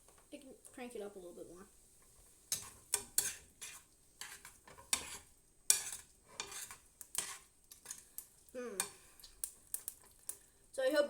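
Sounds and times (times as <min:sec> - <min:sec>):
utensil scraping pasta in pan: 0:01.7 - 0:10.5.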